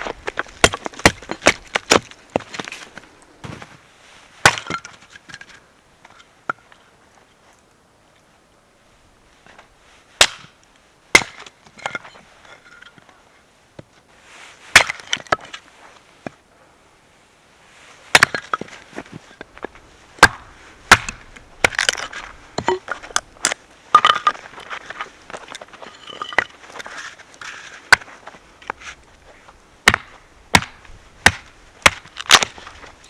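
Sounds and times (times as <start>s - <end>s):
wood splintering and crackling: 0.0s - 3.7s, 19.6s - 28.1s, 29.8s - 33.0s
wood cracking: 0.0s - 3.8s, 19.6s - 26.6s, 29.9s - 33.0s.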